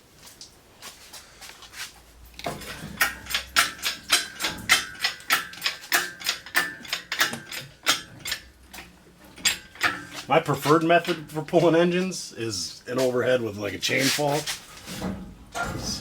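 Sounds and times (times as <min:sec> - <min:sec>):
engine hoist metallic clicks: 0:02.4 - 0:11.3.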